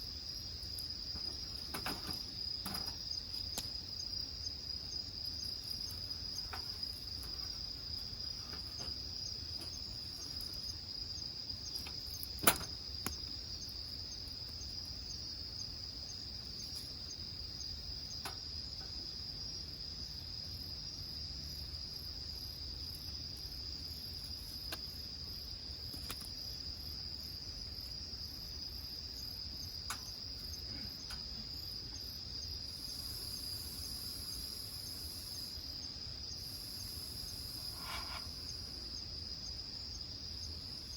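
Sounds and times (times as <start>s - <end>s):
crickets trilling: 0.0s - 40.9s
firewood crackling and popping: 0.6s - 3.9s, 11.5s - 15.0s.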